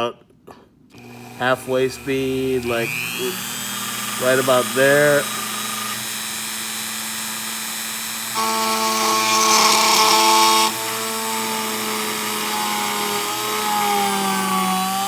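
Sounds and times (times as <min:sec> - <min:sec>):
rotary tool whining: 0:00.9 - 0:15.0
drill bit cutting hiss: 0:01.0 - 0:15.0.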